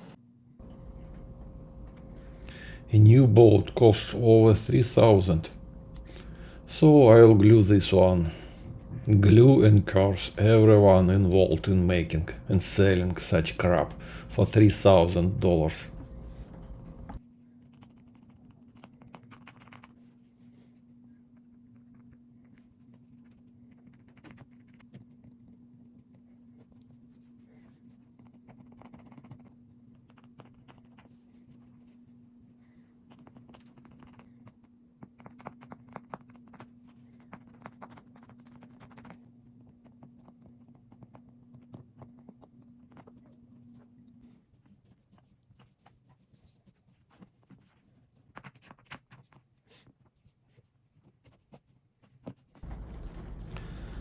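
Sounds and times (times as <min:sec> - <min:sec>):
low electrical hum: 0:00.0 - 0:54.0
hands scratching boat material: 0:33.1 - 0:43.5, 0:44.2 - 0:53.3.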